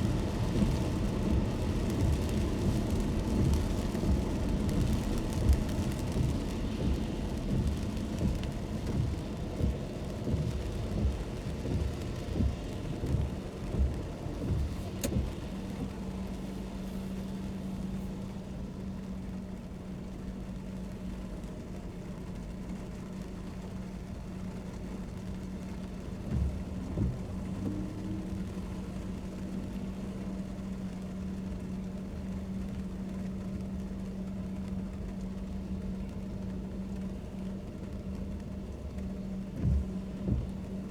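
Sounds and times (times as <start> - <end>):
low engine hum: 0.0 - 40.9
rain: 0.0 - 40.9
low thumps: 39.6 - 40.8.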